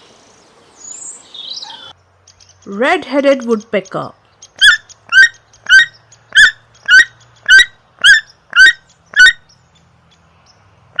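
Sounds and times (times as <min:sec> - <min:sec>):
woodpecker harsh calls: 0:00.8 - 0:11.0.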